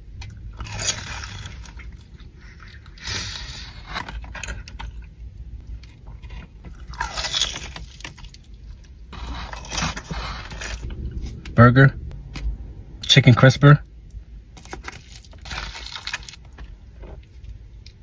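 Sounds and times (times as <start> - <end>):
crunchy bites of fried food: 0.2 - 5.1, 5.8 - 10.9, 14.6 - 16.7.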